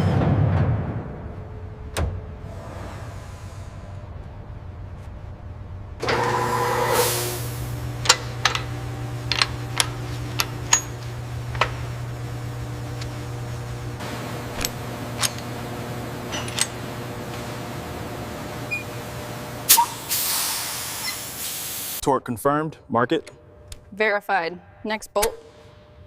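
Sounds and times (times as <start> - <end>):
low machine hum: 1.2 - 21.2
sharp metal clicks and knocks: 9.3 - 11.8.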